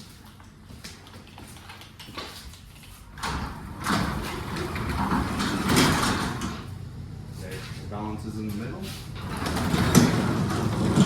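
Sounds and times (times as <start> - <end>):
garage door rollers rumbling: 3.1 - 7.3, 8.4 - 11.0.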